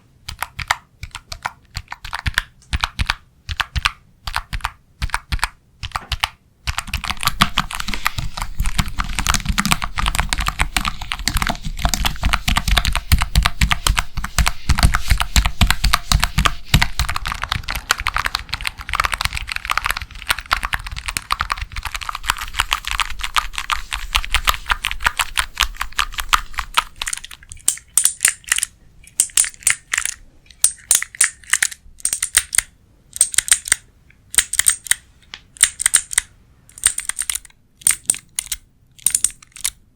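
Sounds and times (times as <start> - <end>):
rapid tapping and clicking: 0.3 - 28.4.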